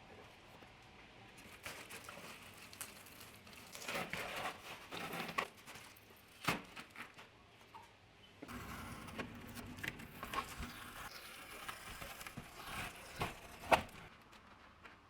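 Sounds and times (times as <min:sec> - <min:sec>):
rustling of things being handled: 0:00.2 - 0:08.0.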